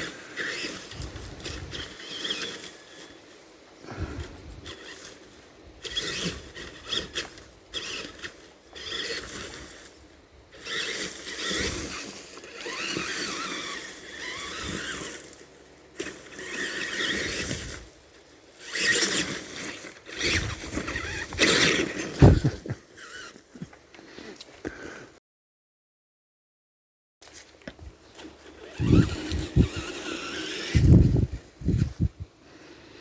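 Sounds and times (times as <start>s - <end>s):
toy truck motors whining: 0.0s - 24.4s, 28.1s - 32.1s
brush crackling under tyres: 0.0s - 24.8s, 27.2s - 32.2s.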